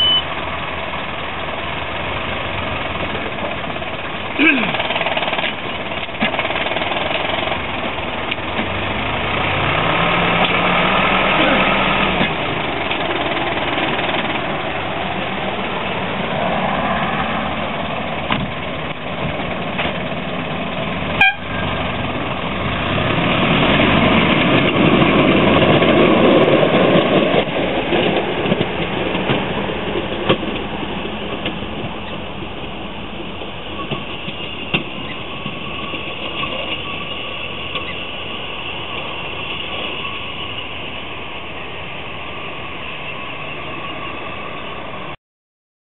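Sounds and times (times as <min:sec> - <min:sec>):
train wheels rumbling on rail: 0:00.1 - 0:45.2.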